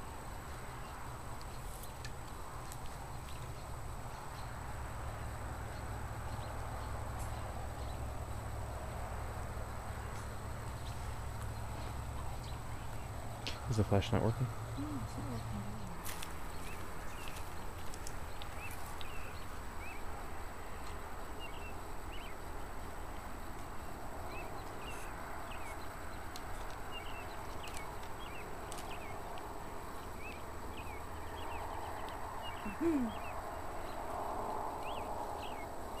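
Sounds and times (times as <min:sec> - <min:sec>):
steady low hum: 0:00.0 - 0:36.0
night animals chirping: 0:11.8 - 0:20.1, 0:21.4 - 0:22.4, 0:24.3 - 0:29.3, 0:30.0 - 0:34.0, 0:34.8 - 0:36.0
low falling animal call: 0:14.7 - 0:16.1, 0:32.5 - 0:33.4.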